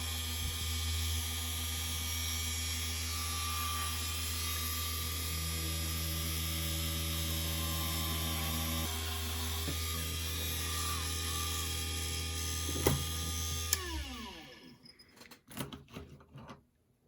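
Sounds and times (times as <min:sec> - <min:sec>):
small lathe running: 0:00.0 - 0:14.8
lathe winding down: 0:05.2 - 0:14.8.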